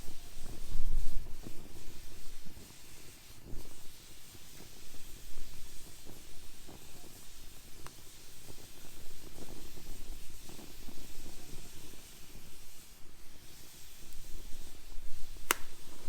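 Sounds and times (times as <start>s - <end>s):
wood fire crackling: 0.0s - 16.0s
fire popping: 4.4s - 16.0s.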